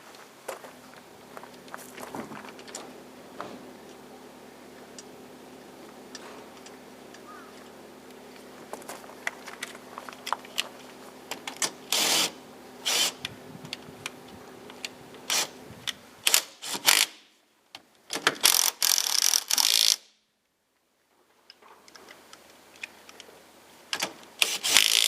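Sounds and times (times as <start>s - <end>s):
short loud tool bursts: 11.9s - 13.2s, 16.2s - 17.2s, 24.4s - 25.0s
hand tools clicking: 24.0s - 25.0s.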